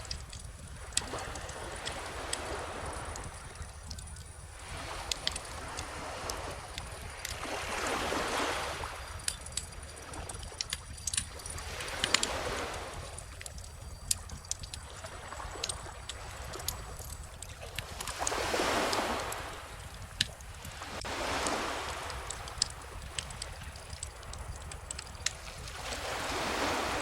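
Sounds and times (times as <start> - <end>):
ocean waves washing in: 0.0 - 3.8, 11.0 - 13.8, 14.4 - 27.0
bonfire crackling: 0.0 - 7.9, 8.5 - 27.0.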